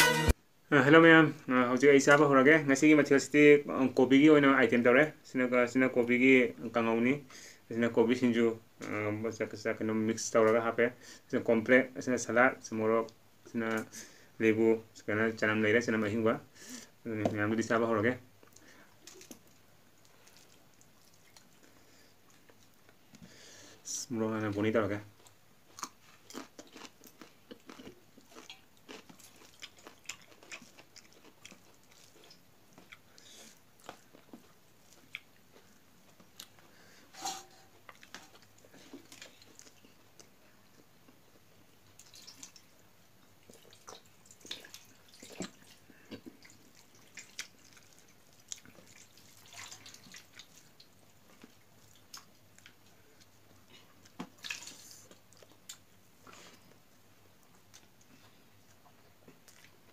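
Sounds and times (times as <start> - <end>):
chewing and crunching food: 18.4 - 23.2, 25.1 - 36.8, 37.7 - 59.9.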